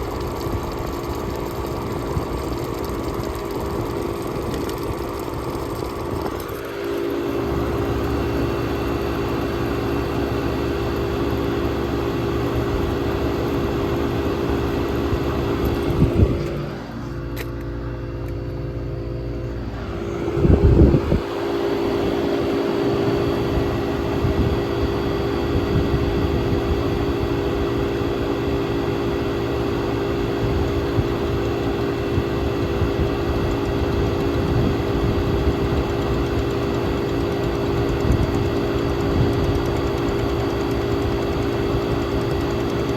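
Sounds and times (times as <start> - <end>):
air conditioner humming: 0.0 - 42.9.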